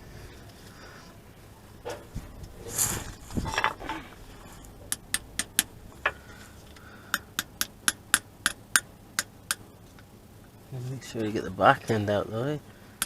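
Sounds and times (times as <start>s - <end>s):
rustle and scrape of handling: 0.0s - 4.8s.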